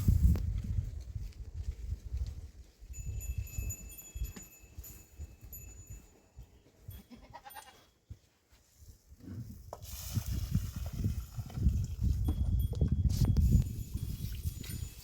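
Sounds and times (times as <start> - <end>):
goat bleating: 7.0 - 7.9.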